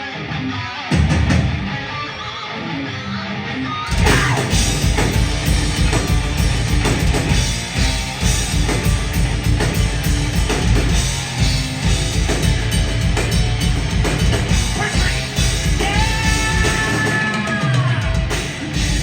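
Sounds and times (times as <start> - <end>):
distorted electric guitars: 0.0 - 19.0
fast drumming on a drum kit: 3.9 - 19.0.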